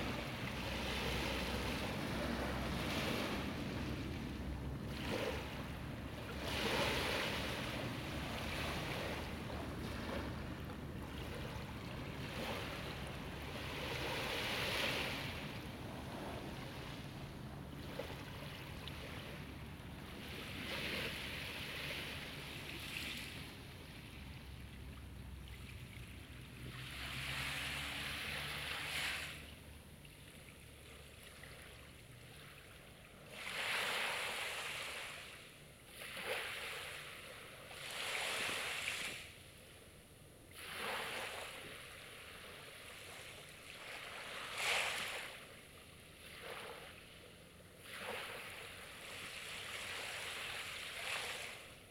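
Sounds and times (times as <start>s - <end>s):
small waves washing onto shore: 0.0s - 39.4s, 40.4s - 51.9s.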